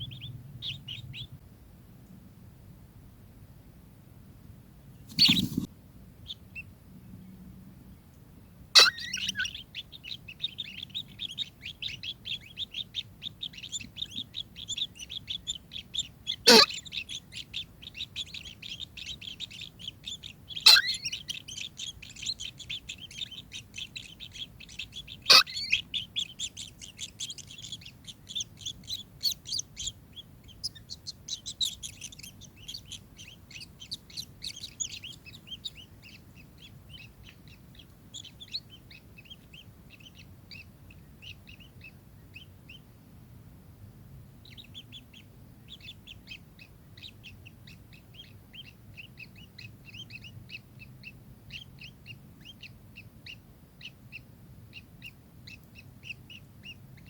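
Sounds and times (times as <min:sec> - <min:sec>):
kingfisher chattering: 0:08.8 - 0:09.6, 0:16.3 - 0:17.6, 0:18.2 - 0:29.9
kingfisher sharp calls: 0:08.8 - 0:12.8, 0:13.4 - 0:36.2.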